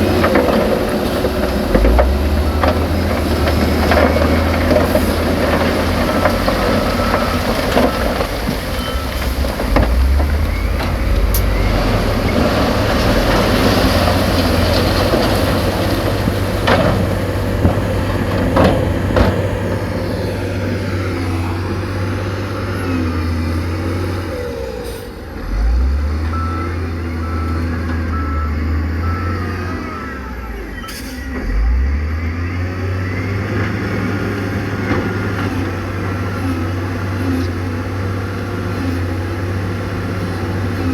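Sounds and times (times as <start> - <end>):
diesel machinery engine drone: 0.0 - 40.9
reversing alarm beeping: 2.0 - 13.0, 26.2 - 34.2.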